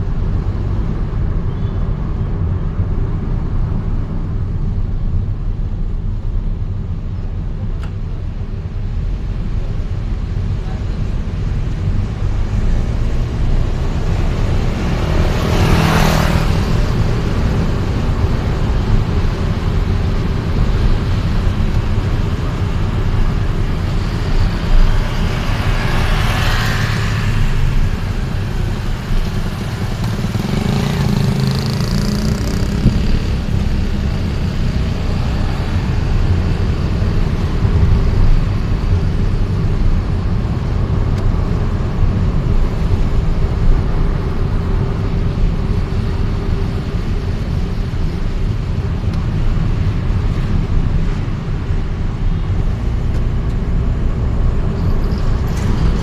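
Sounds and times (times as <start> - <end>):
vehicle rumble: 0.0 - 56.0
vehicles rushing past: 0.0 - 56.0.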